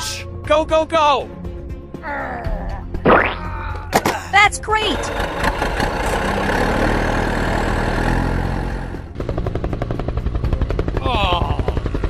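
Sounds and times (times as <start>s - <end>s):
rumbling engine noise: 4.6s - 12.0s.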